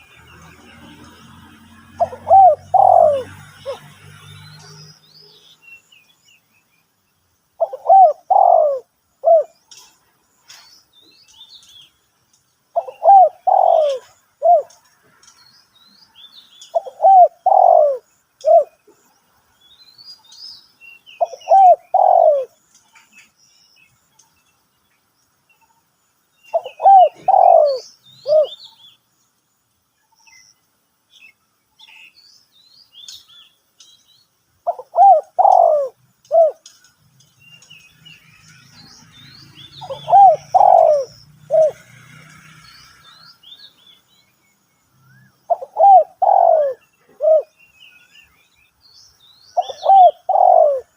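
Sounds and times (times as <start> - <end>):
small birds chirping: 0.0 - 50.9
dove cooing: 1.9 - 3.8, 7.6 - 9.6, 12.8 - 14.7, 16.7 - 18.8, 21.2 - 22.6, 26.5 - 28.6, 34.6 - 36.7, 39.8 - 41.9, 45.5 - 47.5, 49.6 - 50.9.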